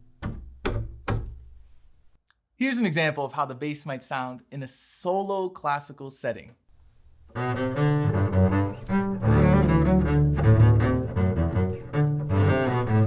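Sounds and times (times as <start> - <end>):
bowed double bass: 7.3 - 13.0.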